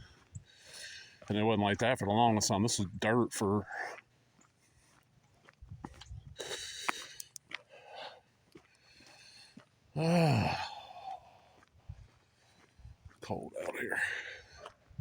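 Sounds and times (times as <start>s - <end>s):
footsteps on gravel: 3.0s - 15.0s
man sighing: 10.0s - 11.3s.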